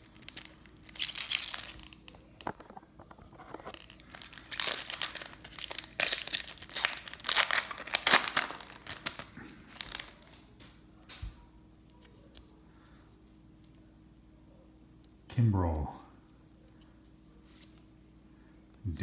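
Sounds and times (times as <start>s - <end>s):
wrapper tearing and crinkling: 0.0s - 10.4s.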